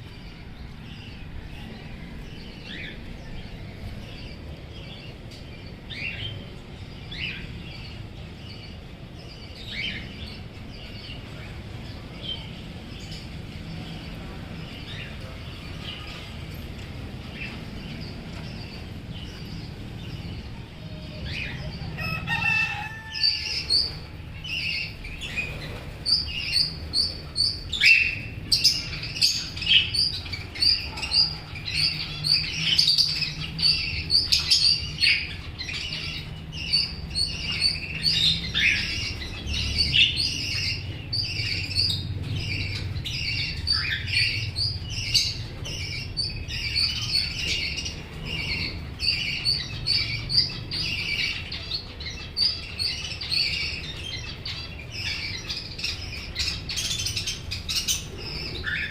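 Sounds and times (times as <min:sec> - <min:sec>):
budgerigars chirping: 0:21.3 - 0:58.9.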